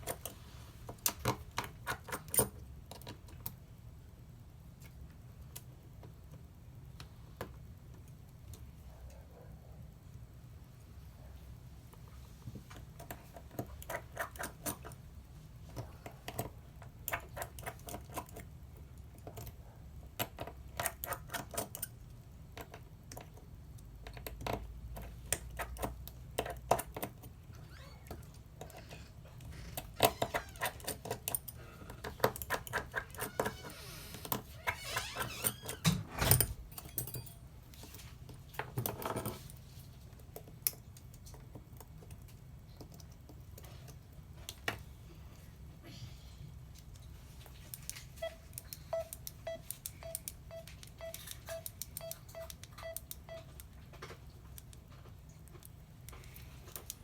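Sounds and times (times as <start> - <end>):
hand tools clicking and tapping: 12.7 - 15.0, 28.6 - 36.0.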